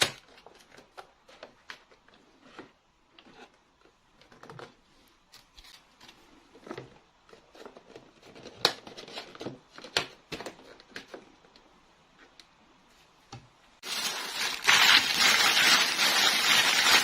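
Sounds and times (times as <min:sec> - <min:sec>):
packaging rustling: 0:13.8 - 0:17.0.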